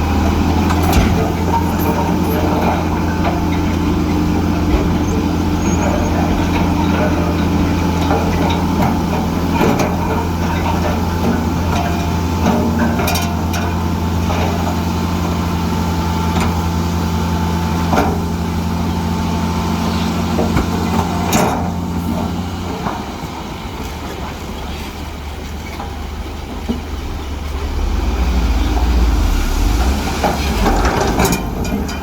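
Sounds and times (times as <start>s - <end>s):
heavy diesel engine running: 23.4s - 32.0s.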